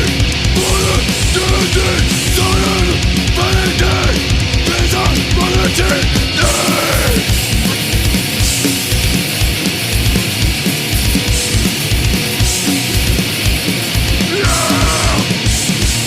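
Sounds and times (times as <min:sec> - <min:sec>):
shouted vocal: 0:00.0 - 0:08.0, 0:14.2 - 0:15.4
distorted guitars: 0:00.0 - 0:16.0
fast pounding drums: 0:00.0 - 0:16.0.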